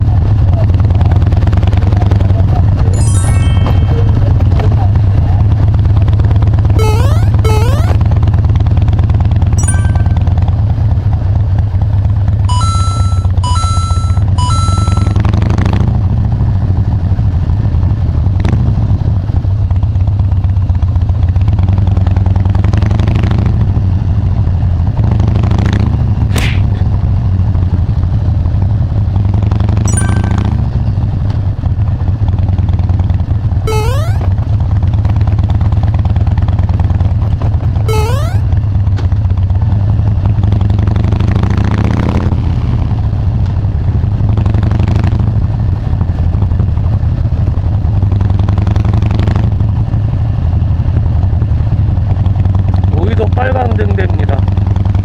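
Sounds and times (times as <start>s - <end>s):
motorcycle engine running: 0.0s - 55.0s
short rising chirps: 3.0s - 4.3s, 6.8s - 8.0s, 9.6s - 10.4s, 12.5s - 15.2s, 29.9s - 30.7s, 33.7s - 34.3s, 37.9s - 38.5s.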